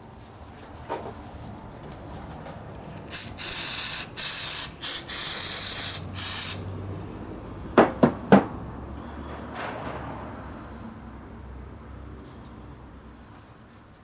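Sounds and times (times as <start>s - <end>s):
pressurised spray hissing: 2.8s - 6.7s.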